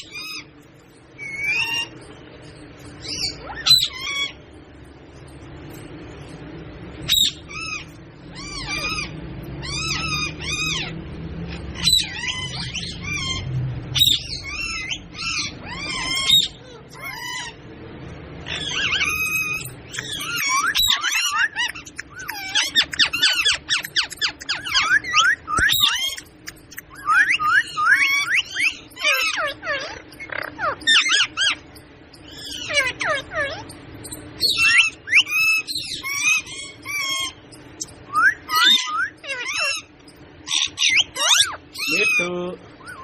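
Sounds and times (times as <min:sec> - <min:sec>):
parrot squawking: 0:00.0 - 0:00.5, 0:01.2 - 0:02.1, 0:02.8 - 0:04.4, 0:07.0 - 0:17.6, 0:18.4 - 0:43.0.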